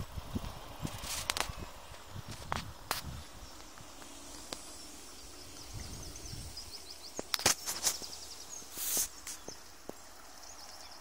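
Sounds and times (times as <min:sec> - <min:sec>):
brief rustle: 0:00.8 - 0:04.7, 0:07.2 - 0:09.6
faint bird twittering: 0:03.2 - 0:11.0.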